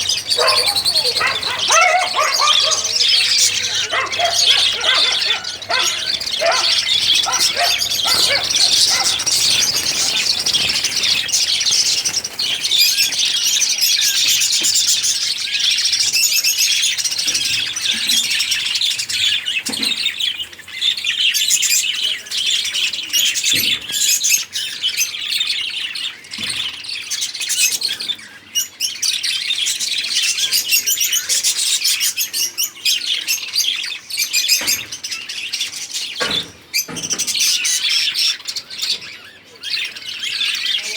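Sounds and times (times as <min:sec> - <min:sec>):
parrots chattering and chirping: 0:00.0 - 0:19.9.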